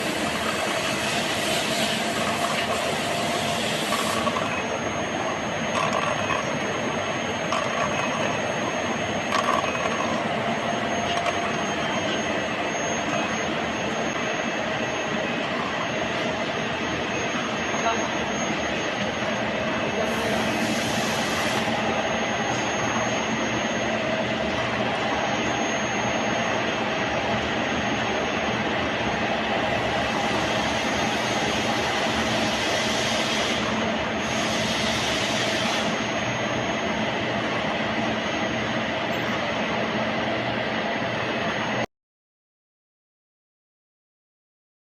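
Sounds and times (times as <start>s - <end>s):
machine humming and hissing: 0.0s - 41.9s.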